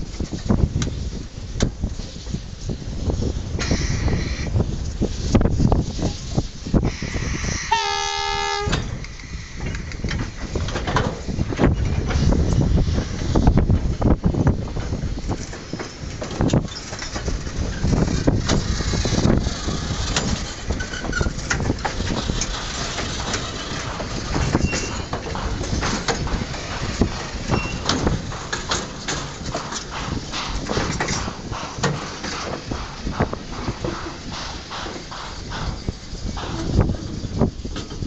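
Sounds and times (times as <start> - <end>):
train wheels rumbling on rails: 0.0 - 38.0
wagons clanking and knocking: 10.0 - 12.3, 14.7 - 38.0.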